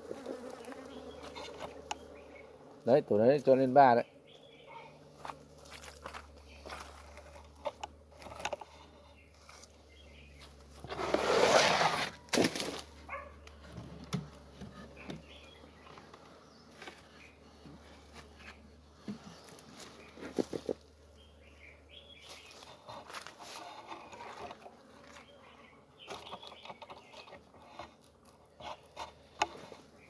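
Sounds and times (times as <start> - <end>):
loud rustling scrape: 10.7 - 13.0, 22.4 - 24.6.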